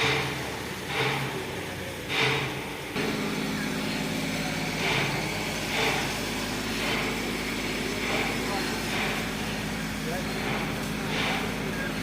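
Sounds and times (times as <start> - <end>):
motor humming: 3.0 - 12.0.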